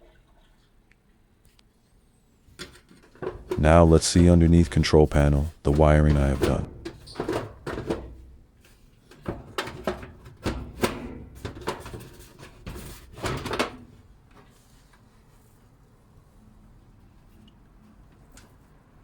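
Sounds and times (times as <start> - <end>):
knocks and rattles on plastic panel: 5.8 - 8.4, 9.1 - 13.9.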